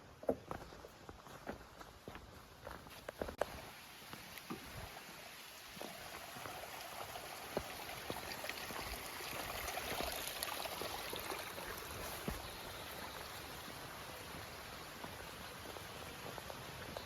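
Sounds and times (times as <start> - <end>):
creek water running: 0.2 - 17.0.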